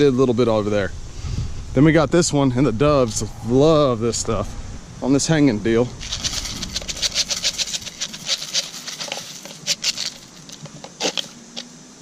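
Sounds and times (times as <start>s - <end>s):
bird seed pattering into feeder: 6.0s - 11.7s.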